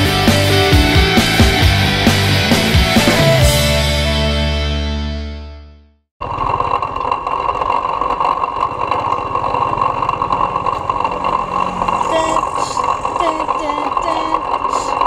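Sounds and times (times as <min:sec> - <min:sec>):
small motorcycle engine running: 0:06.2 - 0:15.0.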